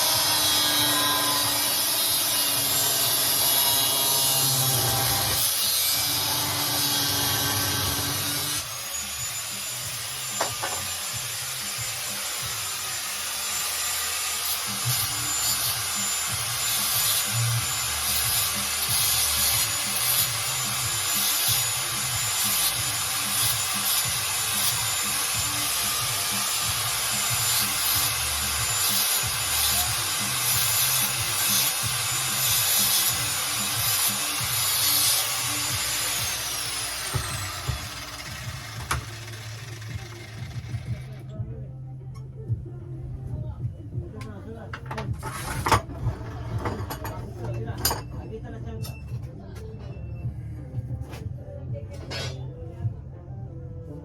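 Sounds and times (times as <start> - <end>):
grinder cutting metal: 0.0 - 41.3.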